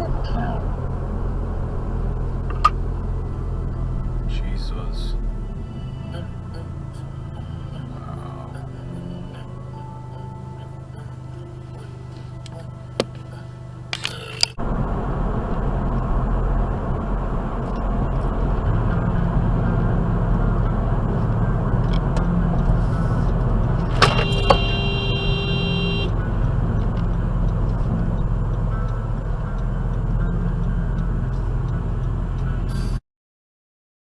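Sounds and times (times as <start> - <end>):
car road and engine rumble: 0.0 - 33.0
car horn: 23.8 - 26.3.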